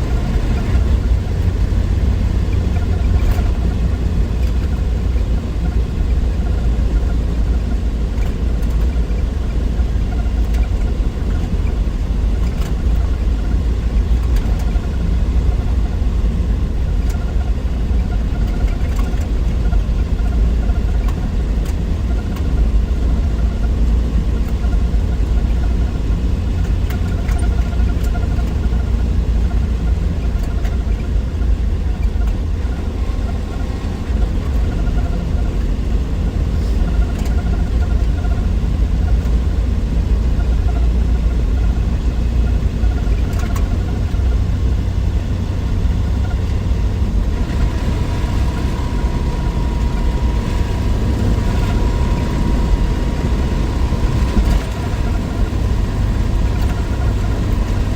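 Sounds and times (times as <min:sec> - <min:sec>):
car engine rumbling: 0:00.0 - 0:57.9.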